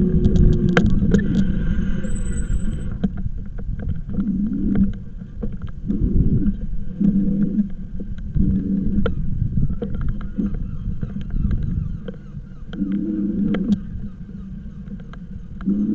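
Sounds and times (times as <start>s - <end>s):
pulsing motor hum: 0.0s - 15.9s
road and wind rumble: 0.0s - 15.9s.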